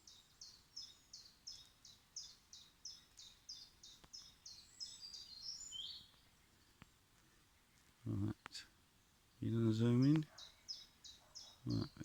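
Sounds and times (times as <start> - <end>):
songbird singing: 0.0 - 12.0.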